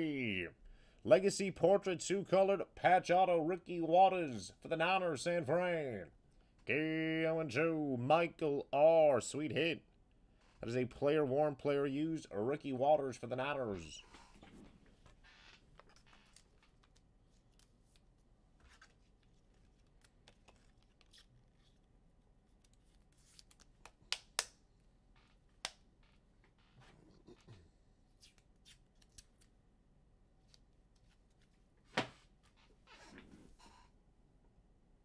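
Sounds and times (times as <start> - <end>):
cards and plastic sleeves rustling: 14.0 - 24.5.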